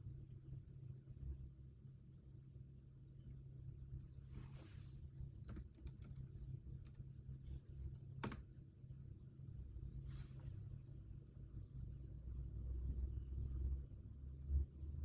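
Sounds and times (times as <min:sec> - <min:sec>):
low steady room hum: 0:00.0 - 0:15.0
computer keyboard keystrokes: 0:05.4 - 0:07.1, 0:07.8 - 0:08.5.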